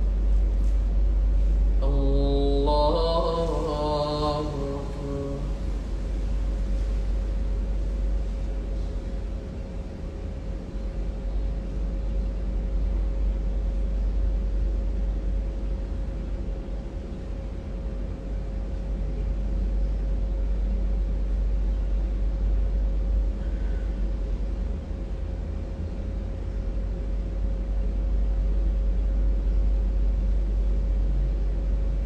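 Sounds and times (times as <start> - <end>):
low rumble: 0.0 - 16.2
faint constant hum: 0.0 - 32.0.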